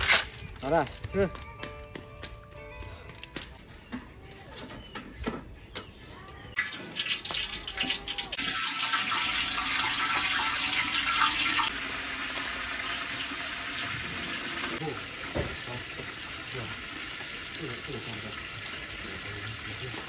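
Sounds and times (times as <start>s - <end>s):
food frying in hot oil: 6.6s - 20.0s.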